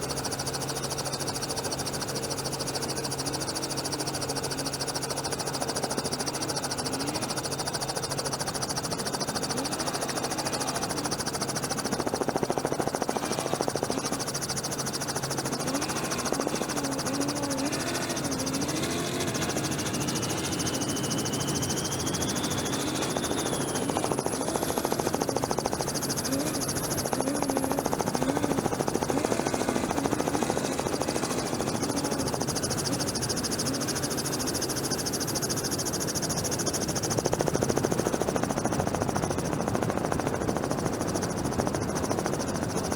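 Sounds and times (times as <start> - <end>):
low wavering engine tone: 0.0 - 36.1
helicopter rotor and turbine: 0.0 - 42.9
rising whine: 9.2 - 34.0.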